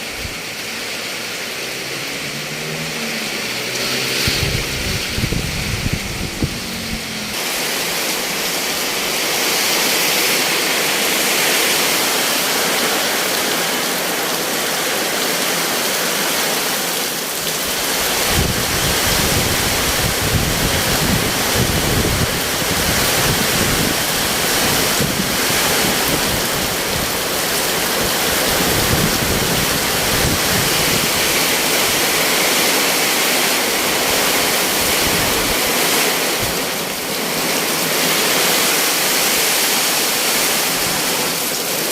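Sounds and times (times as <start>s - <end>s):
heavy rain pouring: 0.0s - 41.9s
wind gusts buffeting microphone: 4.1s - 7.4s, 17.7s - 36.7s.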